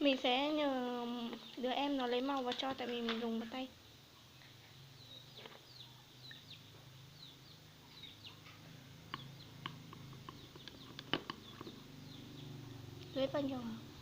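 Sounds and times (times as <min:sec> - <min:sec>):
high bird chirps: 0:04.4 - 0:14.0.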